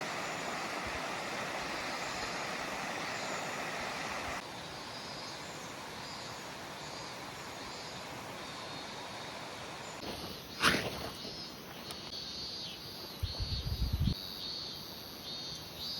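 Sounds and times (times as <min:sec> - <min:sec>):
stream rushing over rocks: 0:00.0 - 0:04.4.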